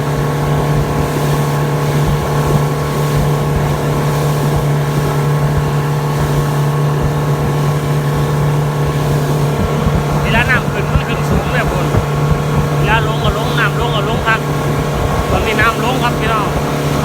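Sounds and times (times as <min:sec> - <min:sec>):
motorboat engine running: 0:00.0 - 0:17.0.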